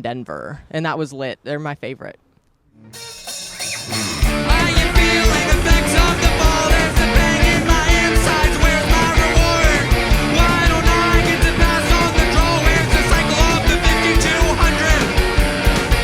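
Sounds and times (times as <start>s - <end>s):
punk rock band playing: 3.0s - 16.0s
person singing: 3.9s - 16.0s.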